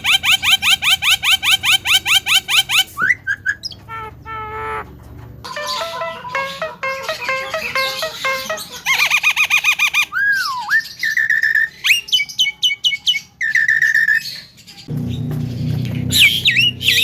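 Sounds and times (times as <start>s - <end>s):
myna bird calling: 0.0s - 17.0s
low hum: 14.9s - 17.0s.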